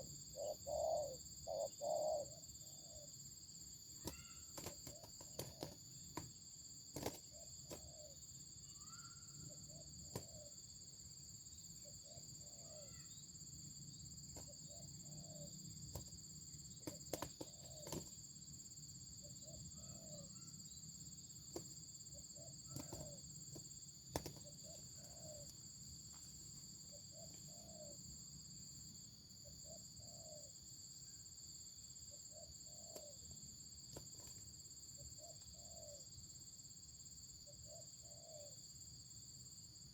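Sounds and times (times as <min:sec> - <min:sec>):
dove cooing: 0:00.0 - 0:02.4, 0:16.8 - 0:18.1, 0:22.4 - 0:23.2, 0:24.1 - 0:25.5, 0:27.1 - 0:28.0, 0:38.0 - 0:38.5
insects droning: 0:00.0 - 0:39.9.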